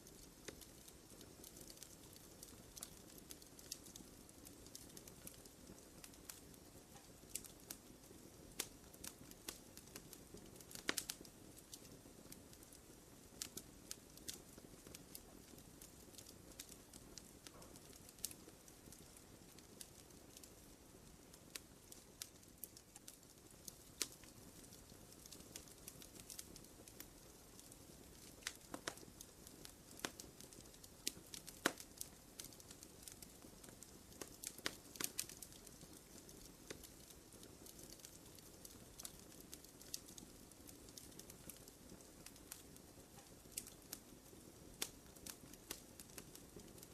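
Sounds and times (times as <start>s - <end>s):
soft rustle of flames: 0.0s - 46.9s
wood fire crackling and popping: 0.0s - 46.9s.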